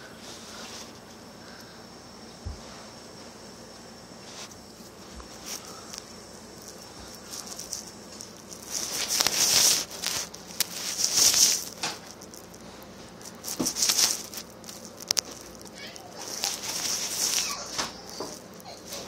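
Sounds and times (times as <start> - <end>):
handling rustling: 4.2 - 19.0.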